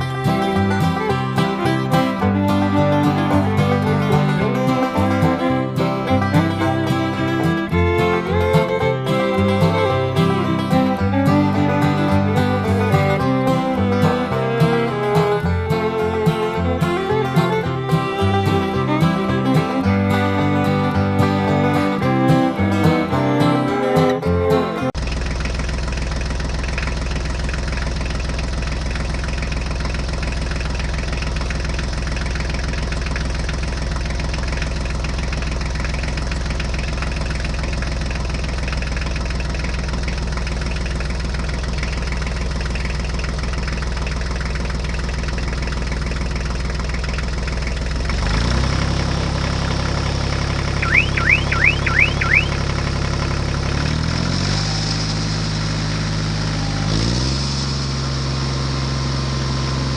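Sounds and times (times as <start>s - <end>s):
guitar music: 0.0s - 25.0s, 49.0s - 53.0s
tractor engine idling: 0.0s - 59.9s
short rising chirps: 50.8s - 52.7s.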